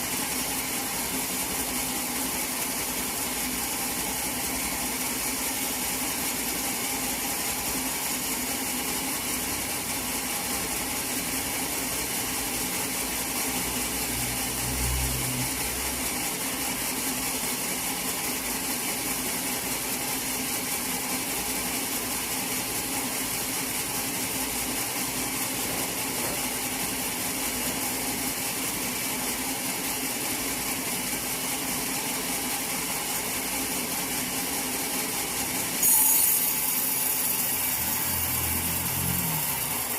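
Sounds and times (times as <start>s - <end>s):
sawmill machinery humming: 35.2s - 39.9s.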